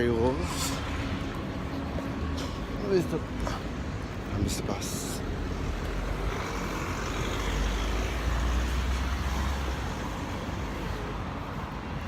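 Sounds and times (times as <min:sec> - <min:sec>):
bus engine rumbling: 0:00.0 - 0:12.0
street traffic: 0:00.0 - 0:12.0.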